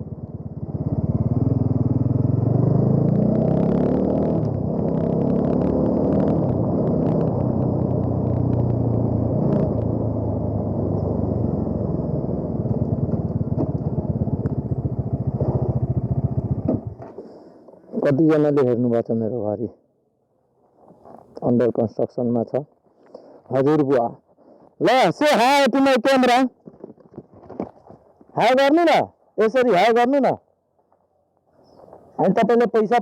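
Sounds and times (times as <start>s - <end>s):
motorcycle engine revving: 0.0s - 17.1s.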